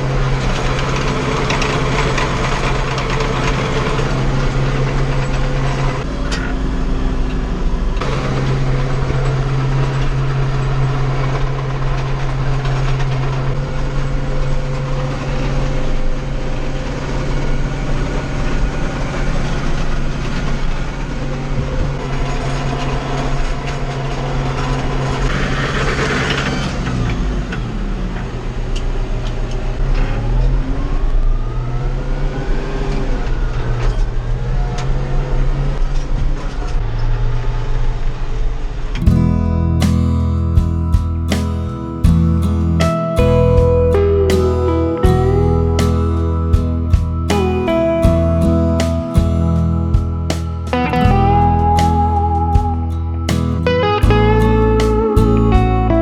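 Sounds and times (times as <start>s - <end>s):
tractor diesel engine running: 0.0s - 13.6s, 39.0s - 56.0s.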